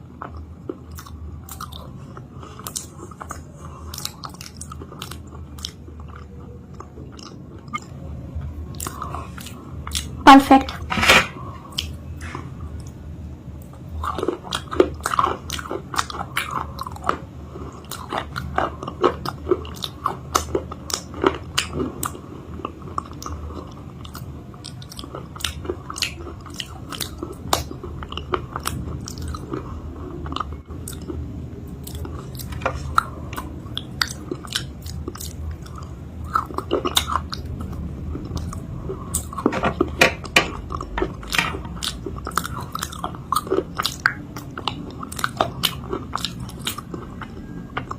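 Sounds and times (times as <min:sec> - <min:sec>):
low steady hum: 0:00.0 - 0:47.9
crunchy biting and chewing: 0:13.6 - 0:47.9.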